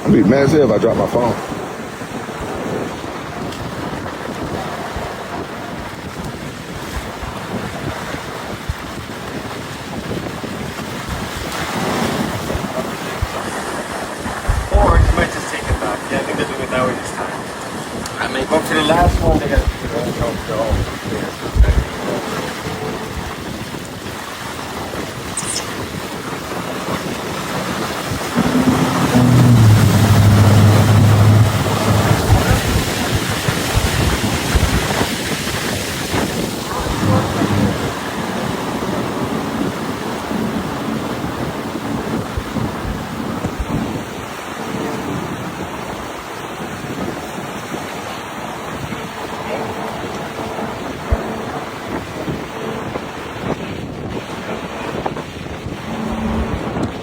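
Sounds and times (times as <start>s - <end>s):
water rushing: 0.0s - 57.0s
wind buffeting microphone: 0.0s - 57.0s
boat motor drone: 11.5s - 57.0s.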